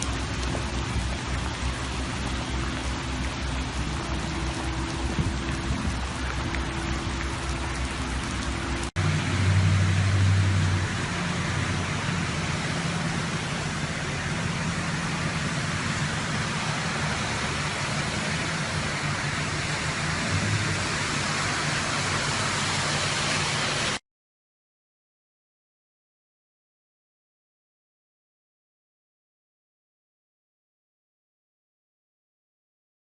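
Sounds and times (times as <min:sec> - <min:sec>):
low engine hum: 0:00.0 - 0:24.0
water rushing: 0:00.0 - 0:24.0.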